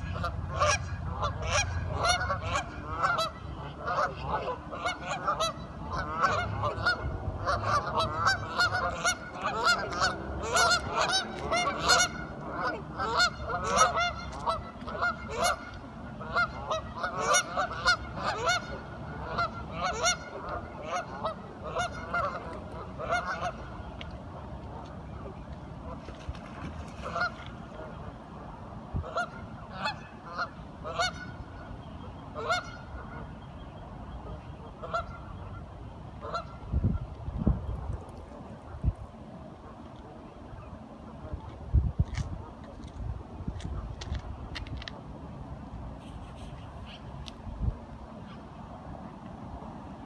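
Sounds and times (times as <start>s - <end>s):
ducks quacking: 0.0s - 23.8s, 25.9s - 28.1s, 29.0s - 31.5s, 32.4s - 33.3s, 34.2s - 36.6s, 46.0s - 47.1s.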